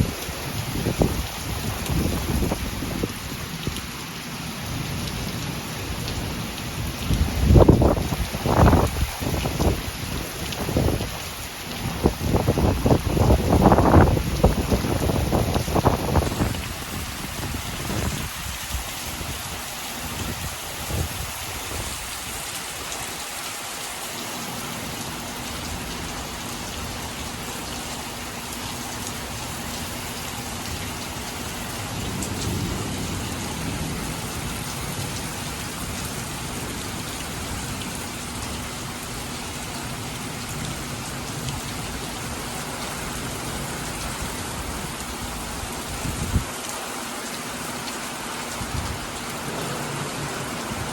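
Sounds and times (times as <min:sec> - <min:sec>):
heavy rain pouring: 0:00.0 - 0:50.9
low rumble of thunder: 0:31.8 - 0:36.0.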